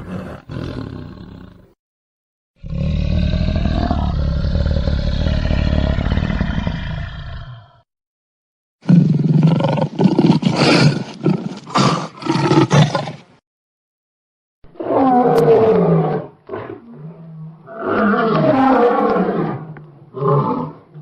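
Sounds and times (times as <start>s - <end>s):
lion roaring: 0.0s - 1.7s, 2.6s - 7.8s, 14.7s - 21.0s.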